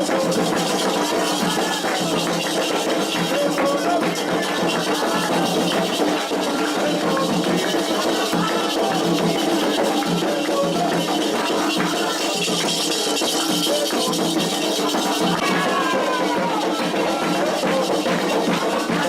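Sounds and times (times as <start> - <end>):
drums: 0.0 - 19.0
rattling shakers: 0.0 - 19.0
voices singing together: 0.0 - 19.0.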